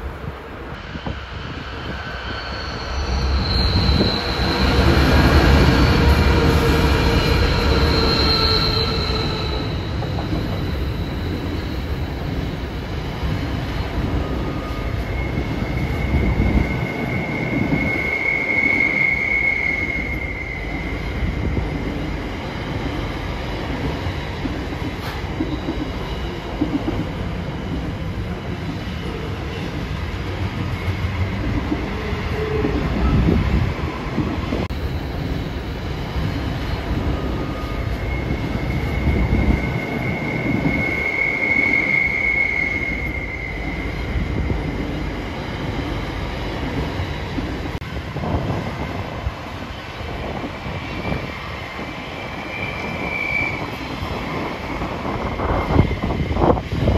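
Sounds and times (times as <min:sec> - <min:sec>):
diesel locomotives passing: 0:00.0 - 0:56.9
wheels squealing: 0:02.1 - 0:12.6.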